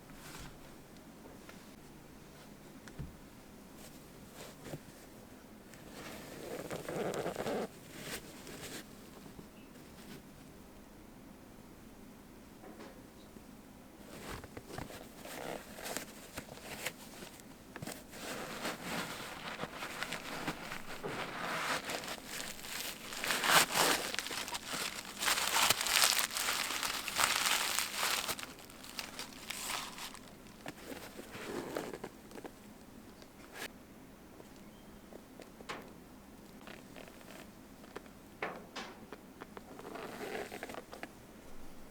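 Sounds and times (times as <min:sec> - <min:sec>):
packing paper crinkling: 0:14.8 - 0:32.4.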